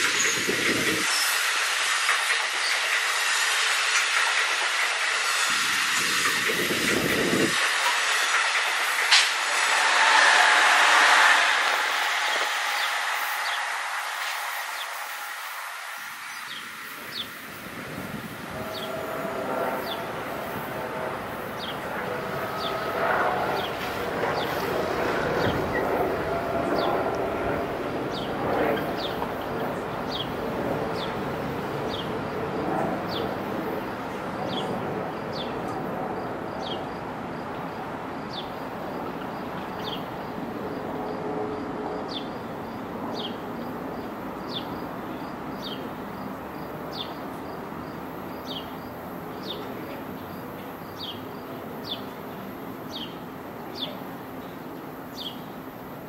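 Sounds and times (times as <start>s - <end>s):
train whining tones: 0.0s - 38.0s
train rumbling past: 0.0s - 56.0s.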